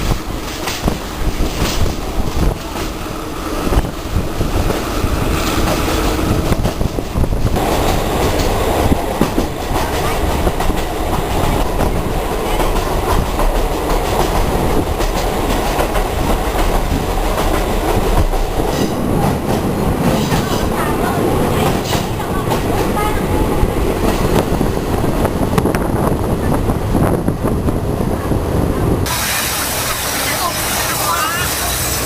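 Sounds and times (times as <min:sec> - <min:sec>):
train rumbling on tracks: 0:00.0 - 0:32.0.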